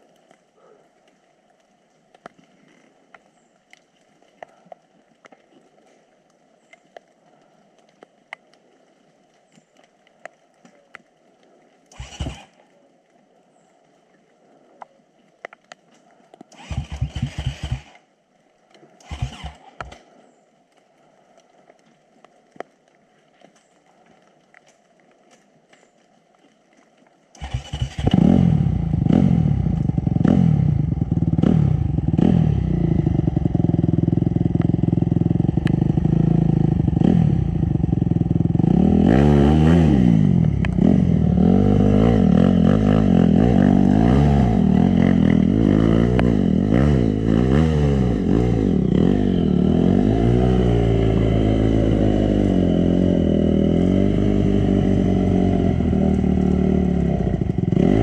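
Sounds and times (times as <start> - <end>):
dirt bike engine revving: 11.9 - 12.5, 16.5 - 18.0, 19.0 - 20.0, 27.4 - 58.0.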